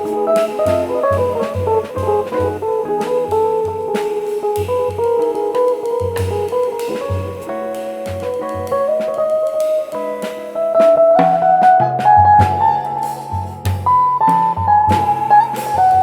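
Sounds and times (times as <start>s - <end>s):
drum kit with brushes: 0.0s - 16.0s
electric guitar melody: 0.0s - 16.0s
walking bass line: 11.7s - 16.0s.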